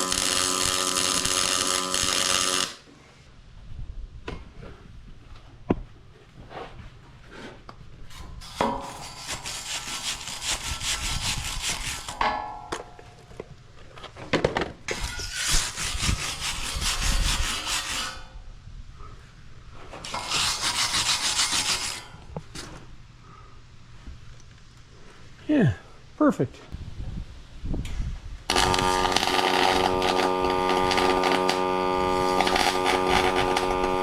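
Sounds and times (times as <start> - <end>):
welder arc crackling: 0.0 - 2.8, 28.5 - 34.0.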